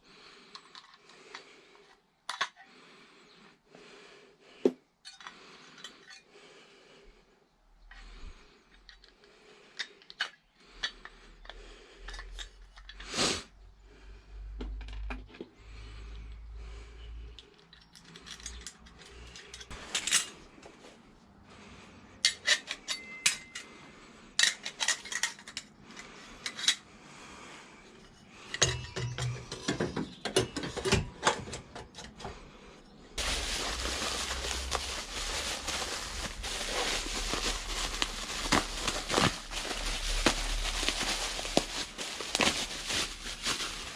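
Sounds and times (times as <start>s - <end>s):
metallic clinks of tools: 22.3s - 23.7s.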